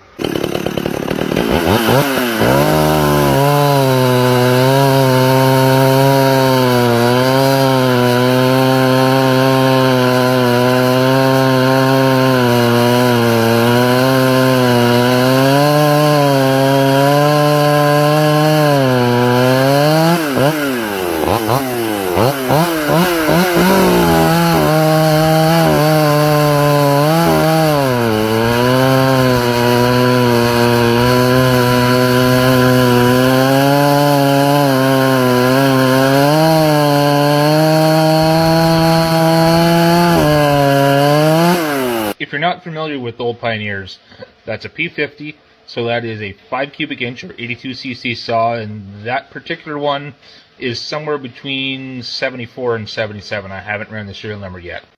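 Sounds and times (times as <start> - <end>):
chainsaw revving: 0.0 - 42.2.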